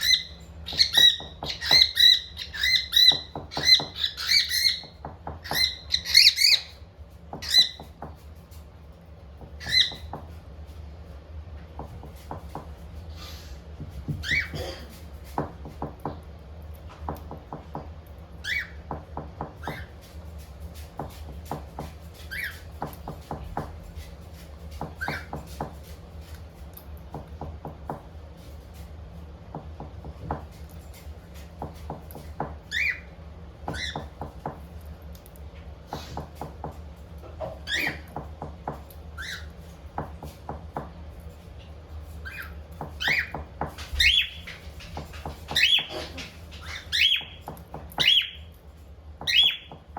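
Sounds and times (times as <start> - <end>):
cockatiels chirping and whistling: 0.0 - 6.8, 7.4 - 7.8, 9.6 - 10.2, 14.1 - 14.6, 18.4 - 18.9, 19.6 - 20.0, 22.2 - 22.9, 25.0 - 25.4, 32.7 - 33.1, 33.7 - 34.2, 37.6 - 38.2, 39.2 - 39.6, 42.2 - 44.8, 45.4 - 48.6, 49.2 - 49.8.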